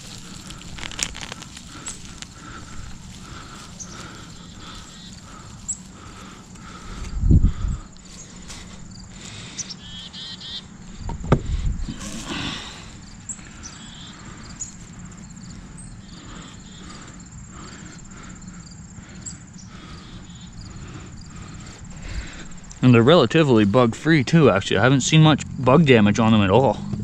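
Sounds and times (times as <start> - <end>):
hay rustling: 0.0 - 7.1, 8.0 - 8.9, 11.9 - 12.8
high insect trill: 0.0 - 26.8
low thumps: 11.0 - 12.6.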